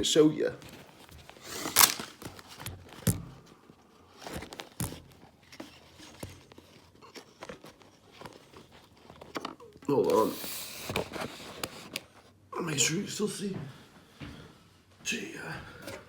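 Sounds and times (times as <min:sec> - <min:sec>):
objects clicking and tapping: 0:04.2 - 0:09.8.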